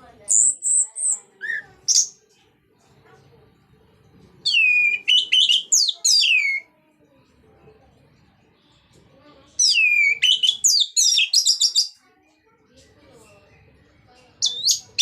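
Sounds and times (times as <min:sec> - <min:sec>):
thrush singing whistled phrases: 0:00.3 - 0:02.2, 0:04.5 - 0:06.7, 0:09.6 - 0:12.0, 0:14.4 - 0:15.0.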